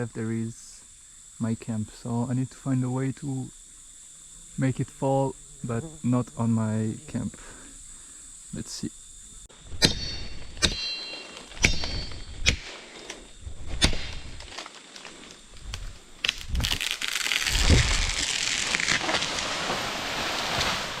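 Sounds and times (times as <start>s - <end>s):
axe chopping palm trunk: 9.8s - 12.7s, 13.7s - 14.3s
palm tree crashing down: 15.8s - 21.0s.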